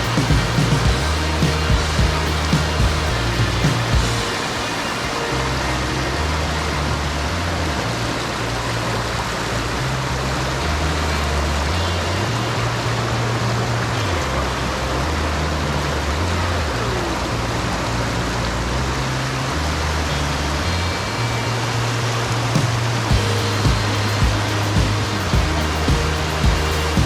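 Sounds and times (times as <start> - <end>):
music bass line: 0.0 - 4.5, 5.2 - 27.0
waterfall rushing: 0.0 - 6.5.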